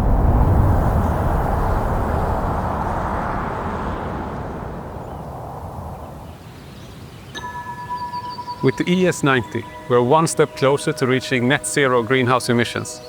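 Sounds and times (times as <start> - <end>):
rushing noise: 0.0 - 5.8.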